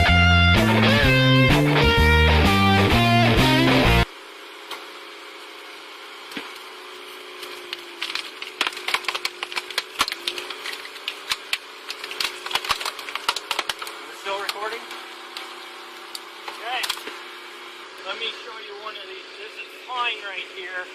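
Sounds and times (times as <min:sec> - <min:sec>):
rock music with guitar: 0:00.0 - 0:04.1
wood cracking and splintering: 0:06.3 - 0:17.2.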